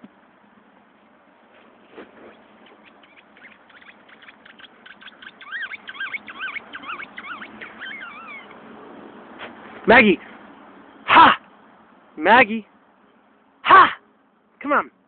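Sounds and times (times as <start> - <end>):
squeaky toy squeaks: 2.8 - 8.6.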